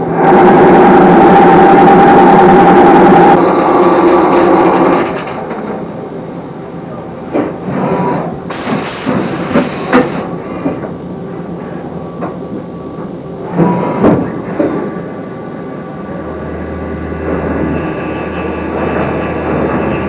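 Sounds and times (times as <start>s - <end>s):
loud hissing bursts: 3.4s - 5.5s, 8.5s - 10.3s.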